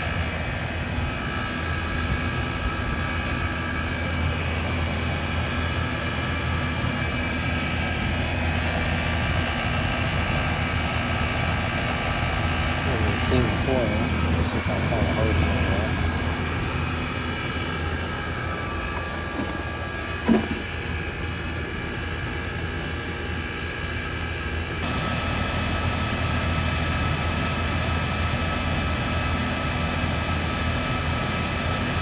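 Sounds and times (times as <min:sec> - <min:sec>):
heat pump hum: 0:00.0 - 0:32.0.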